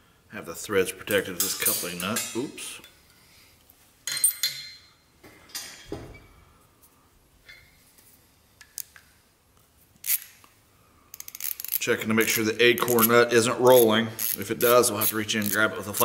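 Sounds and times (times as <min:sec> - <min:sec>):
small metal parts clinking: 0:11.1 - 0:15.7.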